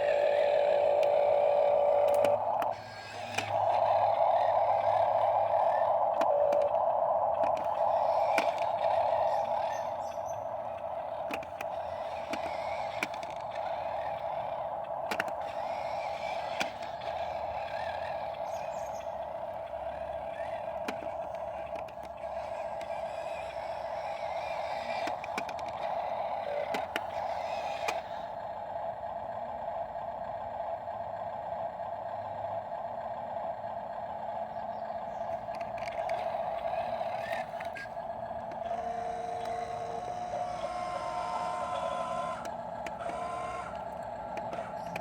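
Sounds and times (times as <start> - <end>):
electric motor whine: 0.0 - 30.8, 33.6 - 45.0.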